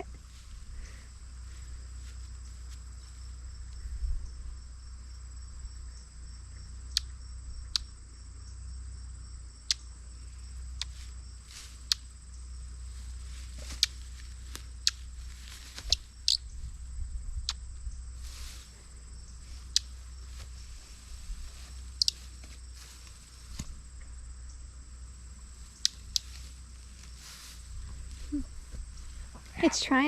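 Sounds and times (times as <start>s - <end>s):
crickets trilling: 0.0s - 30.0s
sharp clicks: 25.8s - 26.4s.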